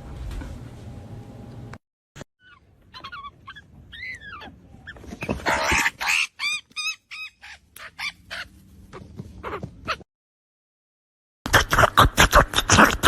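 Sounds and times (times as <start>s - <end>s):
animal chirping: 2.4s - 4.5s, 5.2s - 8.5s
noisy squawk: 5.3s - 8.5s.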